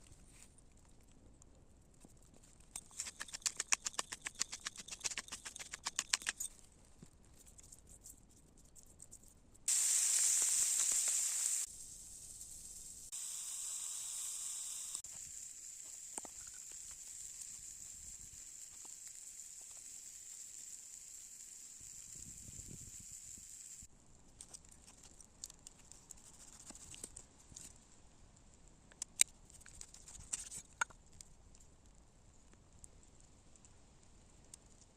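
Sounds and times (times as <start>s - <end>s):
quick clicks and crackles: 0.0s - 8.2s, 24.3s - 27.8s, 28.9s - 33.8s
meat sizzling on a grill: 9.7s - 23.9s.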